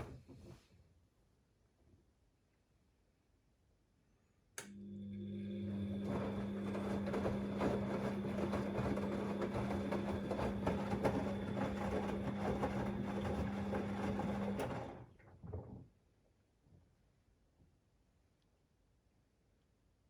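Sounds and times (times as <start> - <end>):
washing machine drain pump hum: 4.6 - 15.8.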